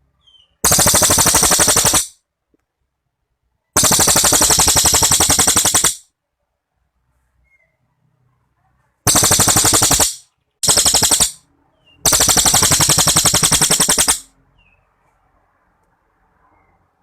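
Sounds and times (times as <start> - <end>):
songbird rapid trill: 0.3 - 2.2, 3.8 - 6.0, 9.1 - 14.3.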